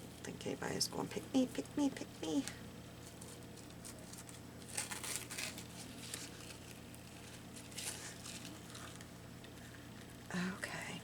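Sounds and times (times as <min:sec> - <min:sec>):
faint low hum: 0:00.0 - 0:11.0
paper rustling and crinkling: 0:03.0 - 0:09.7.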